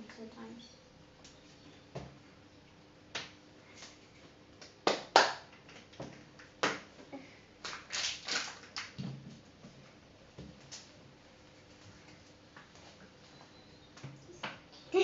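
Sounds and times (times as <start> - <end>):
plastic packaging crinkling: 7.7 - 9.0.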